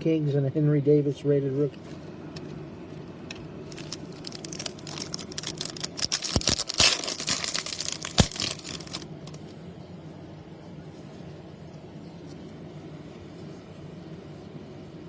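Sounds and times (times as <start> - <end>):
plastic wrapper tearing and crinkling: 3.6 - 9.4.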